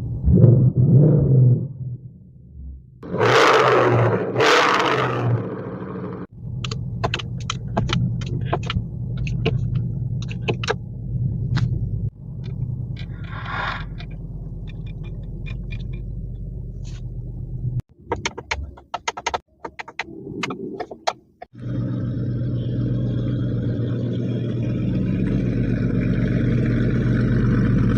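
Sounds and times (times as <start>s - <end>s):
car exhaust rumbling: 0.0s - 27.9s
clicks and clatter: 6.6s - 10.8s, 12.4s - 17.1s, 18.1s - 21.5s.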